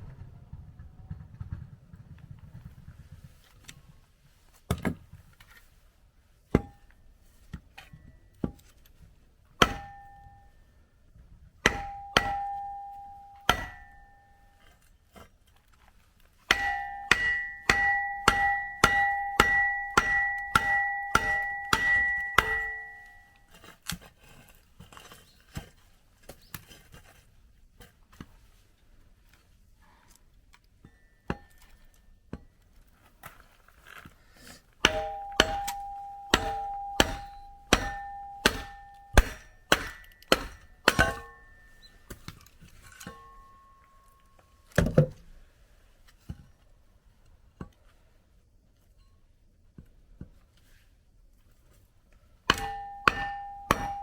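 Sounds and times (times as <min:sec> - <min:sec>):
firewood splitting: 0:08.5 - 0:10.2, 0:11.5 - 0:12.6, 0:13.4 - 0:27.2, 0:33.0 - 0:43.3, 0:52.4 - 0:54.0
hammer clanging on steel wedge: 0:09.6 - 0:10.6, 0:11.6 - 0:14.7, 0:16.5 - 0:23.6, 0:34.8 - 0:42.2, 0:43.0 - 0:44.2, 0:52.5 - 0:54.0.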